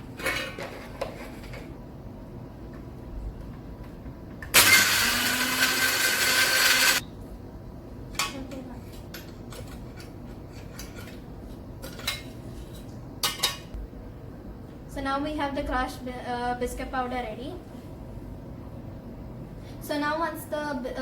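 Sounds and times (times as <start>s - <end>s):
mixer grinder grinding: 4.5s - 7.0s.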